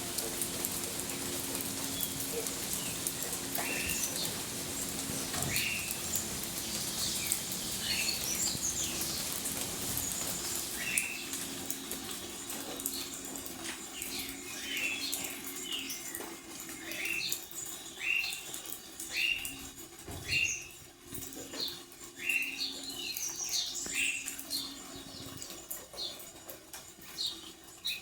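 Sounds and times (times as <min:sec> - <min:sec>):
rain patter: 0:00.0 - 0:28.0
birds calling harshly: 0:01.1 - 0:19.6.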